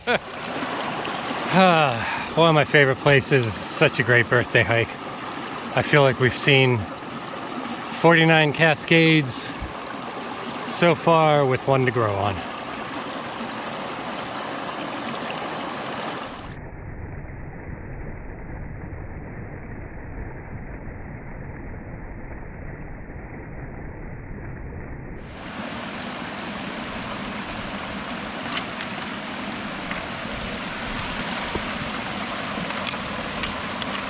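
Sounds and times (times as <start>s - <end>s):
water rushing down cascades: 0.0s - 16.6s, 25.3s - 34.0s.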